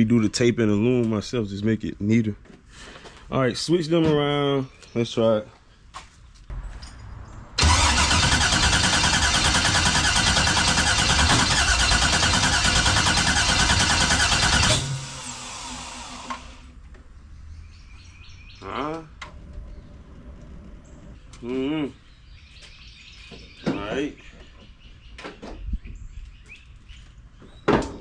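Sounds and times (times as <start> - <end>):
starter motor cranking engine: 7.6 - 16.7
bird chirping: 17.2 - 18.8, 20.7 - 27.8.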